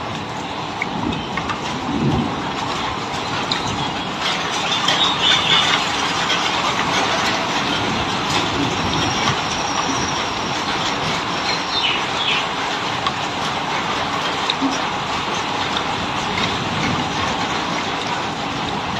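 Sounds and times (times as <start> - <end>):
heavy rain falling: 0.0 - 18.9
bird chirps: 11.5 - 12.5.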